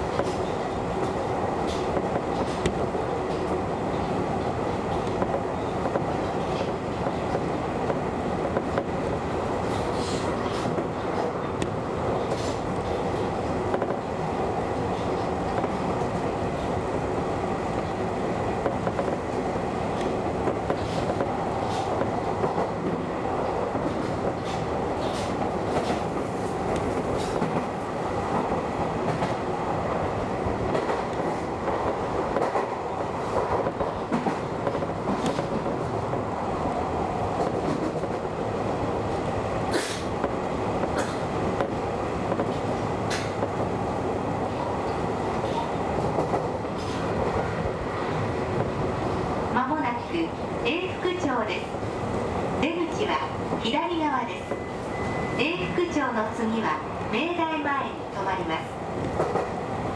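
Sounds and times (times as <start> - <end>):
train rolling and motor noise: 0.0 - 57.3
faint steady high tone: 54.4 - 56.0.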